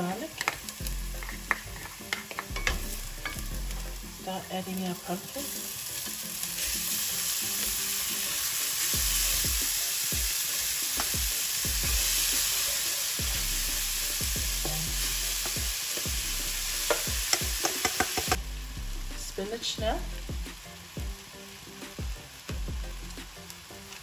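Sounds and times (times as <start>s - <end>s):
vegetables sizzling in oil: 0.0s - 24.0s
wooden spoon scraping a pan: 0.4s - 2.8s.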